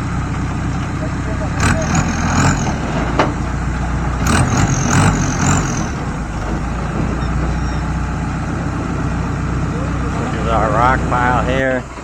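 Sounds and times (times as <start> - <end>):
heavy vehicle engine humming: 0.0 - 12.0
brief high squeal: 7.2 - 8.0.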